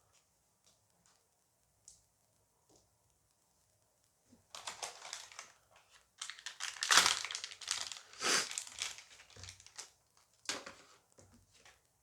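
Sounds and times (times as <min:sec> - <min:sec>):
wrapper crinkling and tearing: 0:04.5 - 0:10.0.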